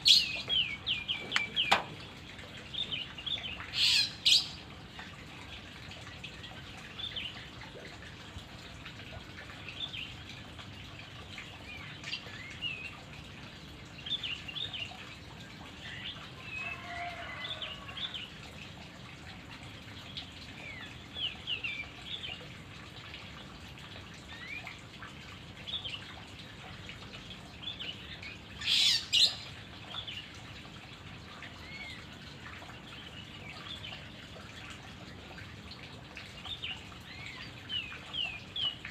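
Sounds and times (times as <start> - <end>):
birds chirping: 0.0 - 4.6.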